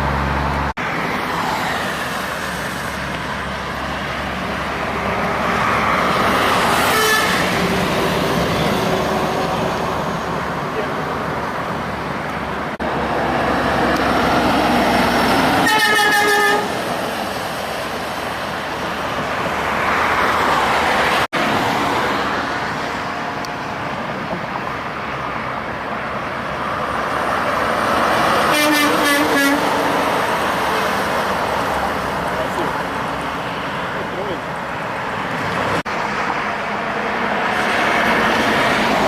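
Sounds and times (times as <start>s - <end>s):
heavy truck traffic passing: 0.0s - 39.0s
truck horn honking: 6.8s - 7.6s, 15.6s - 16.8s, 28.4s - 30.0s.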